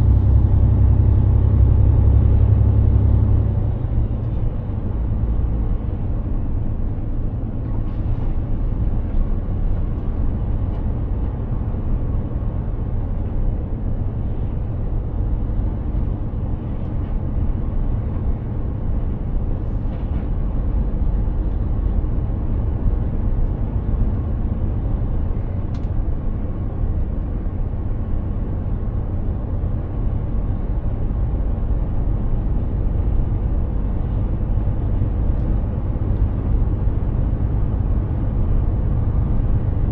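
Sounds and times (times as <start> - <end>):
road and tyre noise: 0.0 - 39.9
truck diesel engine drone: 0.0 - 39.9.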